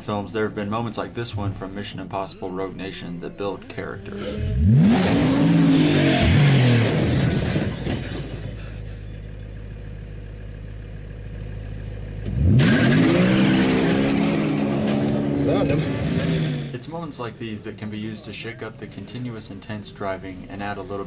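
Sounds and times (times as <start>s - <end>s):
car engine revving: 4.1s - 17.8s.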